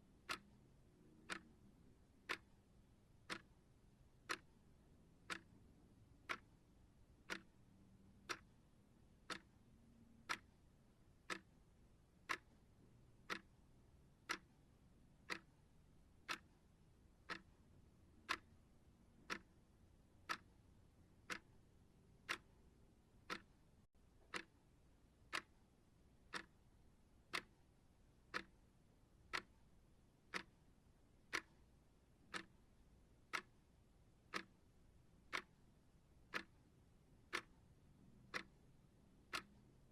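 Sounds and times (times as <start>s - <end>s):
clock ticking: 0.1s - 39.9s.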